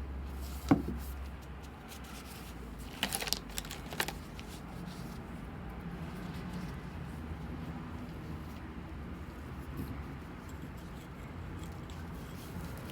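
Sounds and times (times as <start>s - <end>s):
clicks and rustles of handling: 0.3s - 5.4s.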